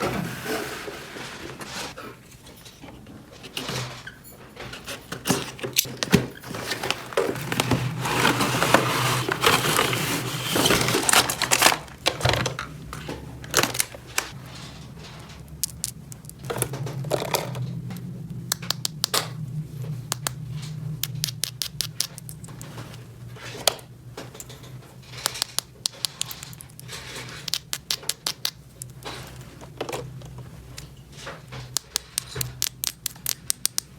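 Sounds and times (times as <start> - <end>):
low steady hum: 4.3 - 33.9
crinkling rustle: 5.3 - 18.0
plastic toy pieces clicking: 21.0 - 22.4, 25.2 - 28.9, 31.7 - 33.9.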